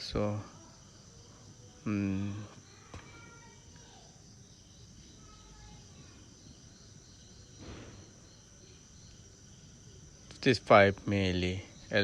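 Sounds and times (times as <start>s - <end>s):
rustle: 7.6s - 8.8s.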